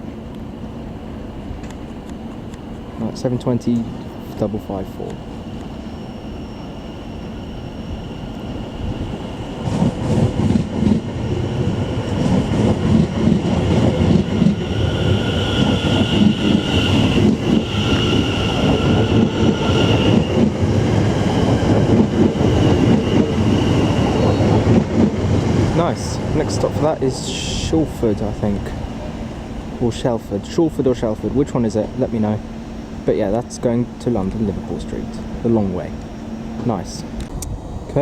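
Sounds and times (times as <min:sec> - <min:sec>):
high-pitched whine: 0:02.9 - 0:09.8, 0:11.0 - 0:38.0.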